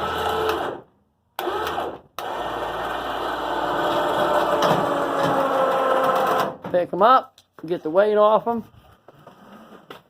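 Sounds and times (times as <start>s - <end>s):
electric winch motor running: 0.0s - 6.5s.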